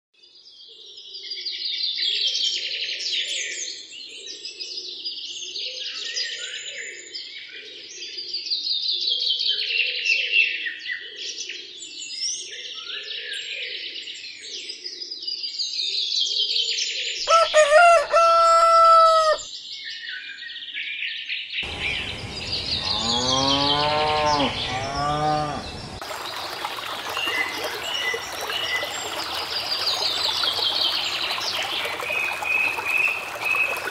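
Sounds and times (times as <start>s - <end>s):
steady farm animal call: 17.3s - 19.4s, 21.6s - 26.0s
low quavering animal call: 21.6s - 26.0s
small birds chirping: 21.6s - 33.9s.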